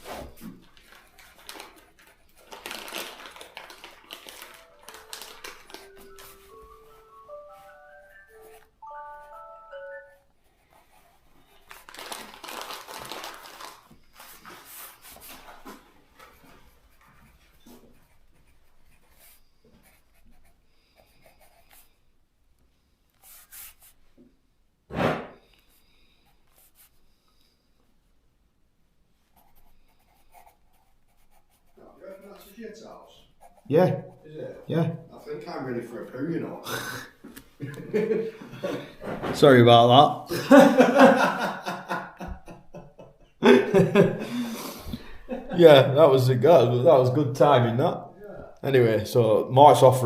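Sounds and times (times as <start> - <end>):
pencil writing on paper: 17.0 - 22.0, 23.2 - 24.0, 29.4 - 32.6
sharp knock: 24.9 - 25.4.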